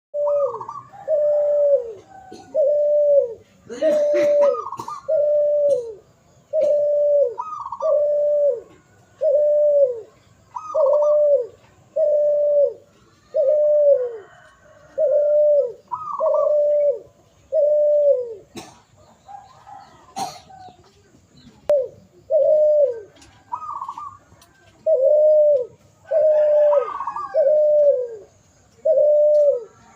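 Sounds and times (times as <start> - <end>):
dove cooing: 0.2 - 29.9.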